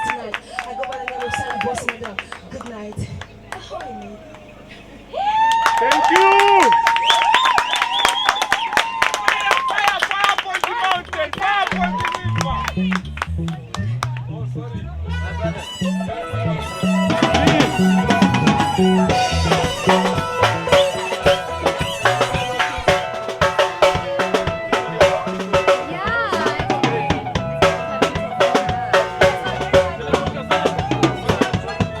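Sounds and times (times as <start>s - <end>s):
live band music: 15.0s - 32.0s.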